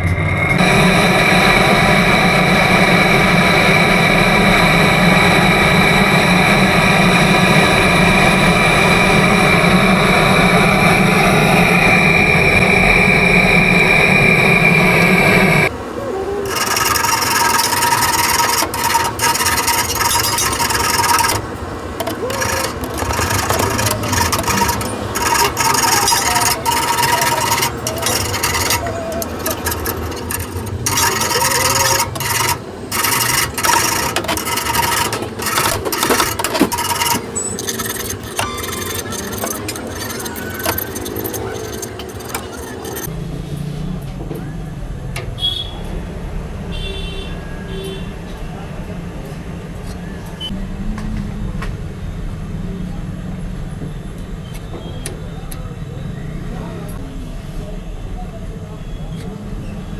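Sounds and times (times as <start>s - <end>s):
loud rushing with whistling tone: 0.0s - 15.7s
metal tools scraping on pipework: 16.5s - 21.4s, 22.0s - 43.1s.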